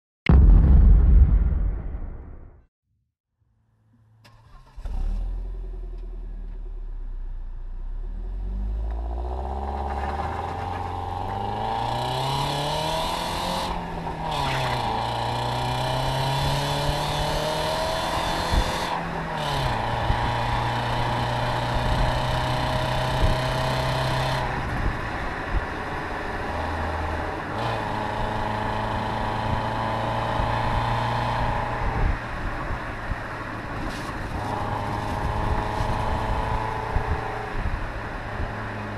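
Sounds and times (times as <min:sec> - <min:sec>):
car engine revving: 0:08.2 - 0:24.8, 0:33.9 - 0:37.4.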